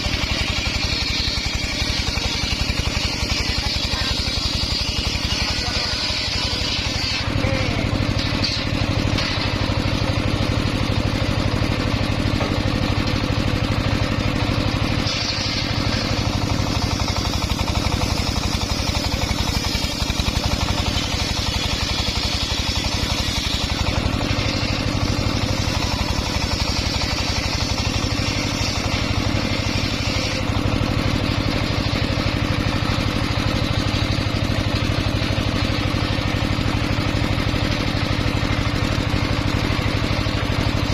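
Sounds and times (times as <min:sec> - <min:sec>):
saw blade whirring hiss: 0:00.0 - 0:10.1, 0:14.0 - 0:38.1
engine-driven circular saw running: 0:00.0 - 0:40.9.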